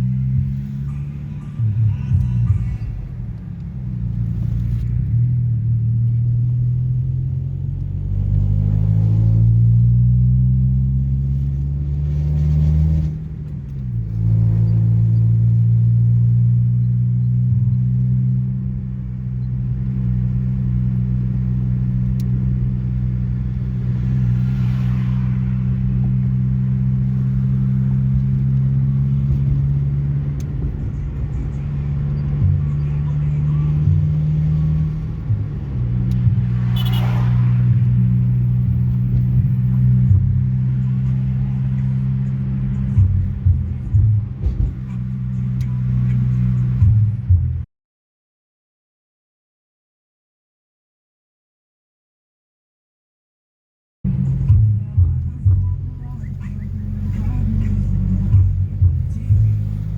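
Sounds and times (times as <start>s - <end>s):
pickup engine droning: 0.0s - 47.6s, 54.1s - 59.9s.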